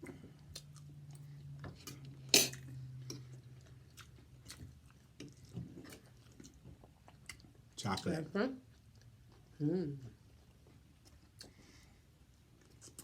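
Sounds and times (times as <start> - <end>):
chewing: 3.1 - 7.6.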